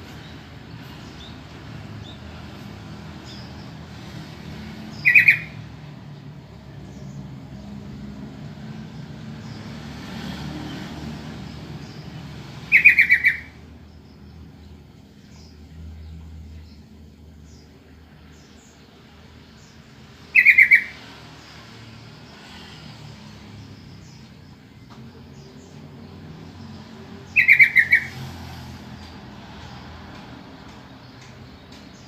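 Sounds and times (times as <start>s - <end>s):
bird chattering calls: 4.9s - 5.6s, 12.7s - 13.6s, 20.3s - 21.0s, 27.3s - 28.2s.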